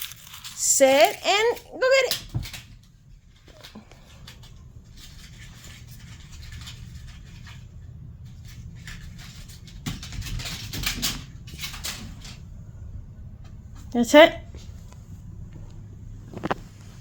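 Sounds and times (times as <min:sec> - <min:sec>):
sharp clicks and rustles: 0:00.0 - 0:12.7, 0:14.6 - 0:17.0
kitten scratching and pattering: 0:00.0 - 0:17.0.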